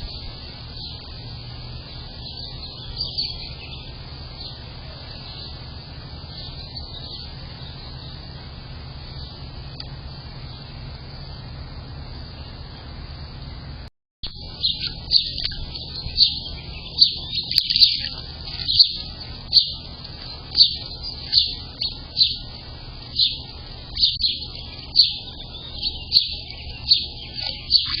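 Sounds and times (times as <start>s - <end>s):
high bird chirps: 0.0s - 8.4s, 14.2s - 28.0s
steady low rumble: 0.0s - 28.0s.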